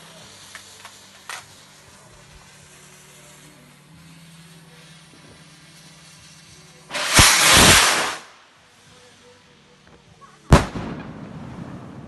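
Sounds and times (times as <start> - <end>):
firework rocket whoosh: 0.0 - 8.4
firework bang: 6.9 - 8.4, 10.5 - 12.0.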